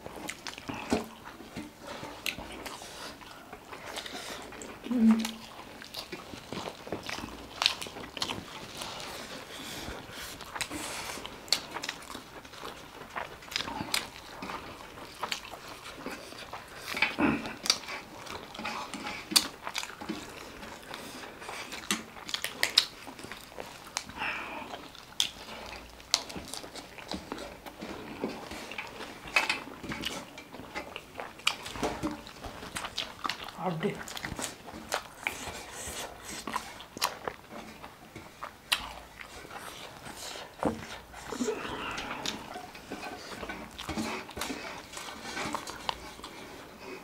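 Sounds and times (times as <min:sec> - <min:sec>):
people biting and chewing: 0:00.0 - 0:47.0.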